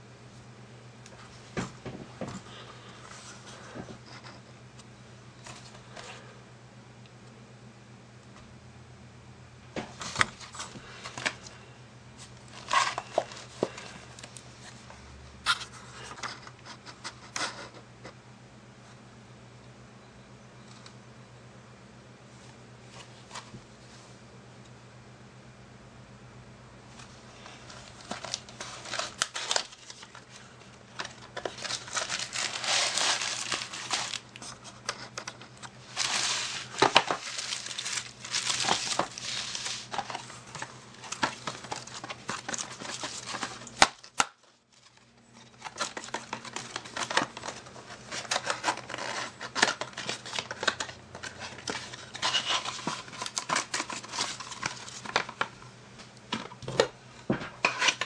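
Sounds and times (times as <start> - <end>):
crinkling and rustling: 12.2 - 17.6, 26.9 - 58.0.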